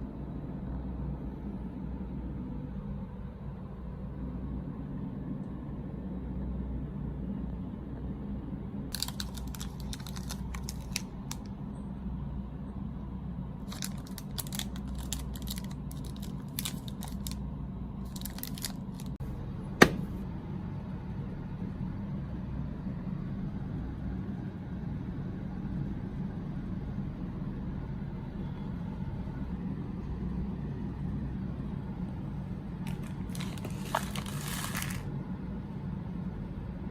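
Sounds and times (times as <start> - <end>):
steady low hum: 0.0 - 36.9
snack packaging crinkling: 8.9 - 11.5, 13.6 - 17.4, 18.0 - 19.2, 32.9 - 35.1.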